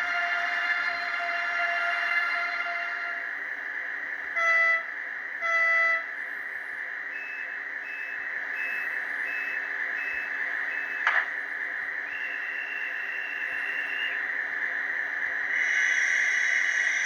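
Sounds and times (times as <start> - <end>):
model train horn toots: 0.0 - 3.3, 4.3 - 6.1.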